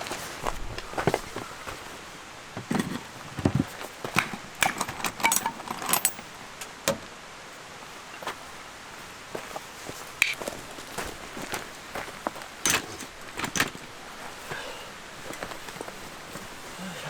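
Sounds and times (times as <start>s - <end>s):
gear clinking and knocking: 2.6s - 6.4s, 12.6s - 13.9s.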